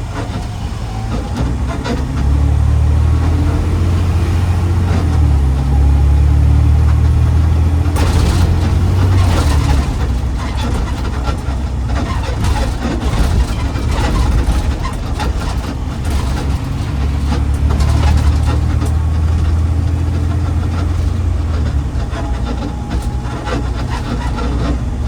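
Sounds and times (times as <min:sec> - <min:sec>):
garbage truck engine rumbling: 0:00.0 - 0:25.0
rattling road noise: 0:00.0 - 0:25.0.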